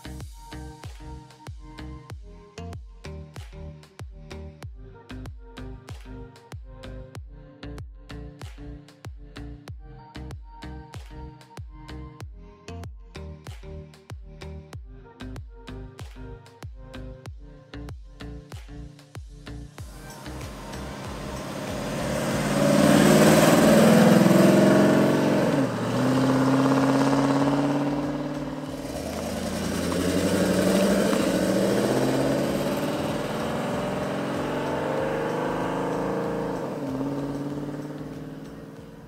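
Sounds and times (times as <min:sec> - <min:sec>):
car engine accelerating: 0:19.8 - 0:39.0.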